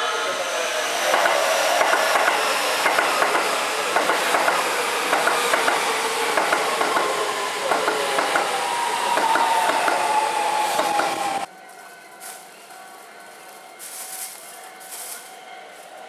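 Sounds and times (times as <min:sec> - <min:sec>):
train rumble: 0:00.0 - 0:11.5
wheels clacking over rail joints: 0:01.1 - 0:11.5.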